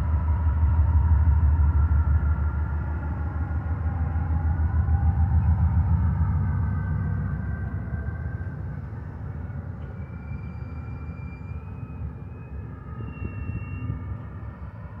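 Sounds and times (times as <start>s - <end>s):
train rumbling on rails: 0.0s - 15.0s
faint high squeals: 3.8s - 15.0s.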